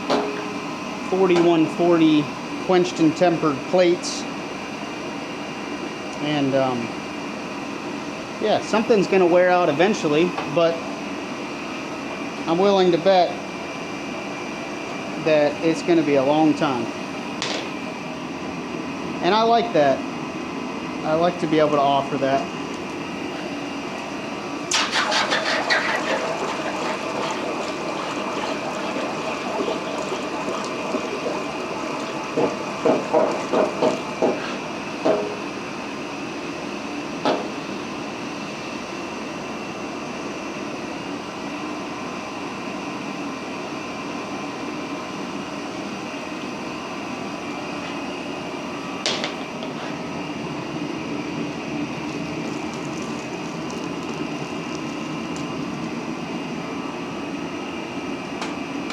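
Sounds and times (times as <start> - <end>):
gas forge roar: 20.8 - 36.2, 46.0 - 58.9
water churning and running: 24.7 - 35.0, 51.8 - 56.6.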